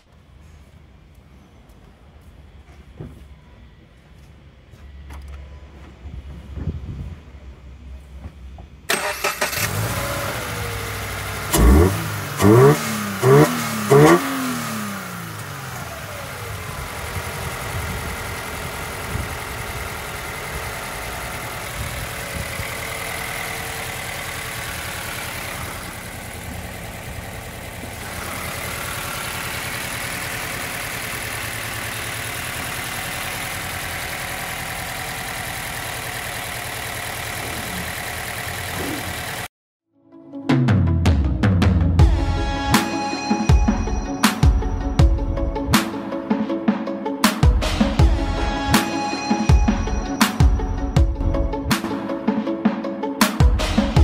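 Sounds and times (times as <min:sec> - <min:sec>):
car engine idling: 0:07.3 - 0:39.5.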